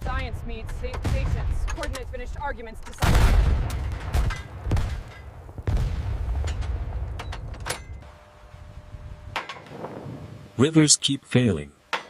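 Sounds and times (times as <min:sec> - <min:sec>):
heavy booms of explosions: 0:00.0 - 0:02.3, 0:03.0 - 0:07.6
low rolling rumble: 0:00.0 - 0:10.7.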